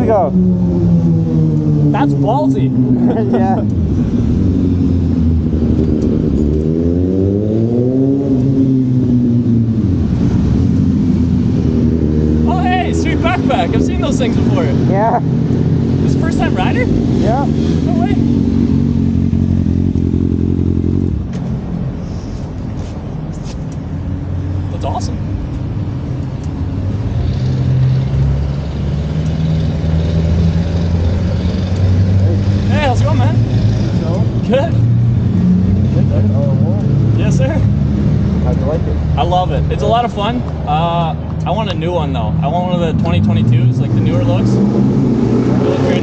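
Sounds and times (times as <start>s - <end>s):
motorcycle engine revving: 0.0s - 21.7s, 26.3s - 41.2s, 42.2s - 46.0s.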